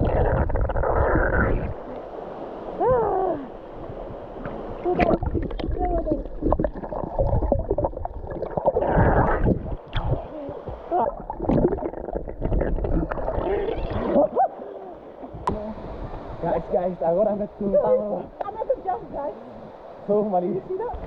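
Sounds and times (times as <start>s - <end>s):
water splashing and gurgling: 0.0s - 16.5s.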